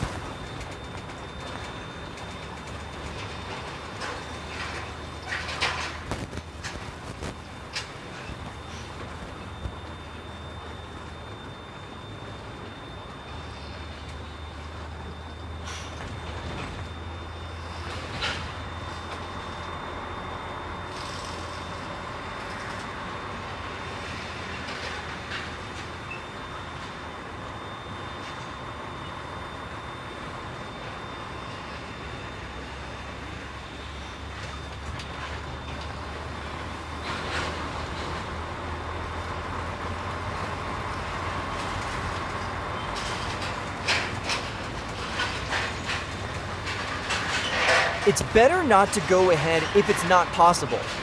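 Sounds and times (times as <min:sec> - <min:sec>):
road noise: 0:00.0 - 0:00.8, 0:35.9 - 0:51.0
diesel engine drone: 0:00.0 - 0:51.0.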